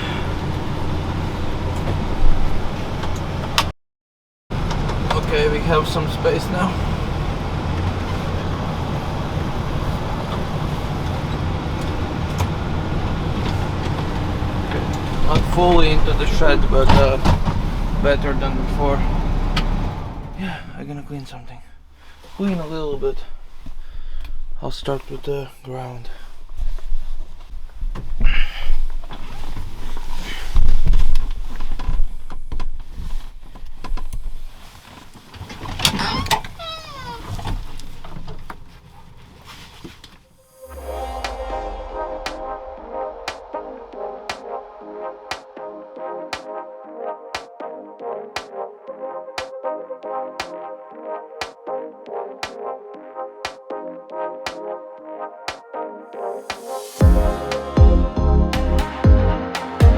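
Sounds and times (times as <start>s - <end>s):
tractor diesel engine idling: 11.9s - 21.0s
heavy low thumps: 40.7s - 44.8s, 57.0s - 59.9s.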